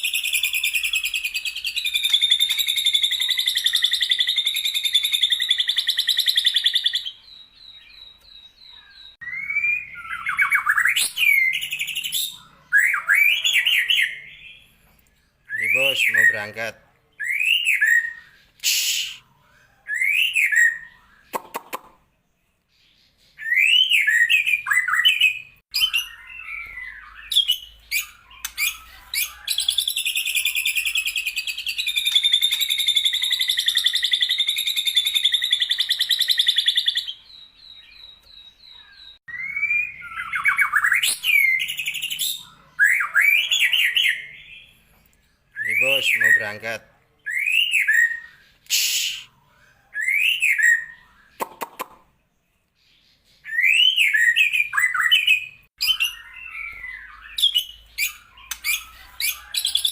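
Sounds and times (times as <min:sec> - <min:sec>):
songbird whistled song: 0:00.0 - 0:46.6, 0:47.2 - 0:59.9.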